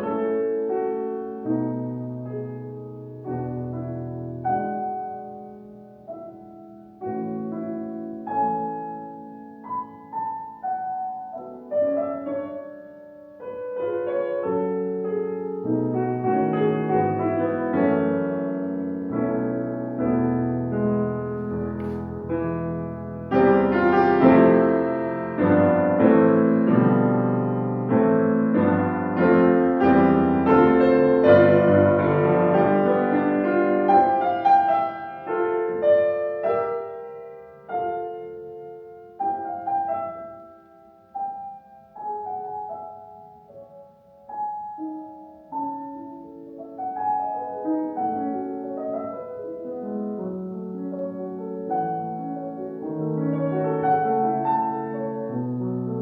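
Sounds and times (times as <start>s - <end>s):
classical piano music: 0.0s - 56.0s.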